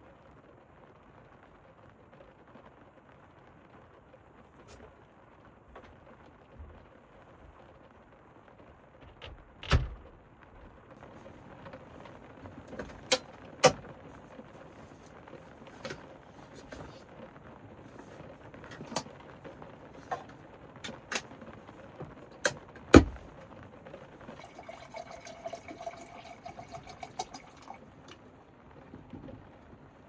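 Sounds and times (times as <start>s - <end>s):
clicks and knocks of handling: 12.0s - 13.9s, 14.8s - 17.1s, 17.9s - 21.4s
dull thump: 22.9s - 23.3s
liquid being poured: 24.2s - 28.2s.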